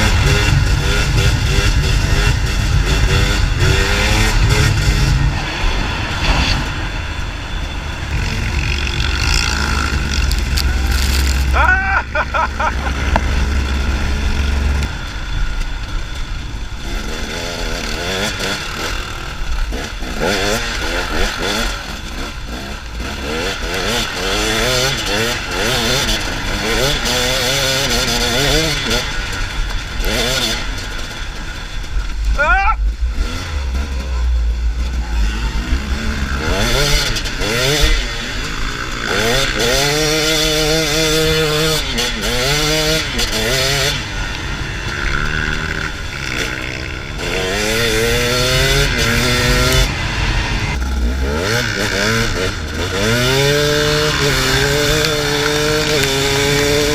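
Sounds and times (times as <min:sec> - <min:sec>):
motorcycle engine running: 0:00.0 - 0:05.7, 0:06.7 - 0:56.9
people talking: 0:10.6 - 0:12.8, 0:32.3 - 0:32.8.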